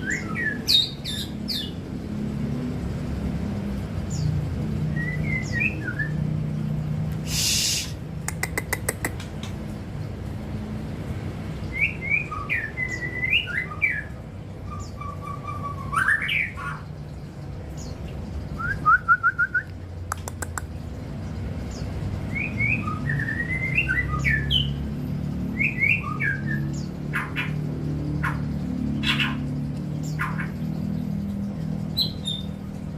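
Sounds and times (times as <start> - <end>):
bird singing whistled notes: 4.9 - 6.4, 11.7 - 16.6, 18.5 - 19.8, 22.2 - 24.8, 25.5 - 26.9.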